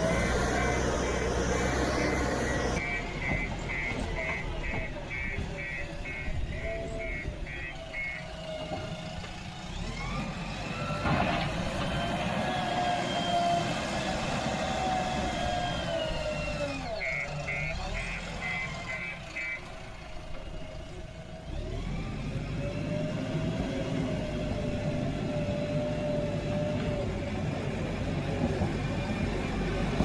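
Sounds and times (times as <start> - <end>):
diesel engine revving: 0.0 - 30.0
reversing alarm beeps: 2.5 - 8.3, 16.9 - 19.6.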